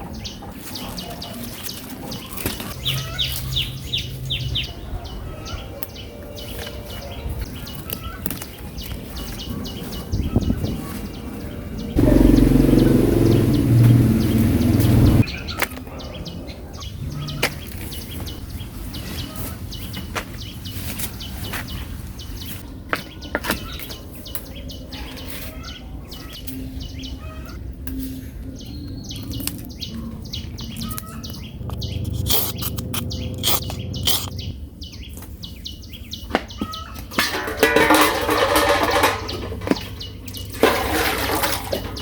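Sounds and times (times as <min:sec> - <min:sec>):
small birds chirping: 0:00.0 - 0:42.0
steady low rumble: 0:11.9 - 0:15.3, 0:29.7 - 0:34.9.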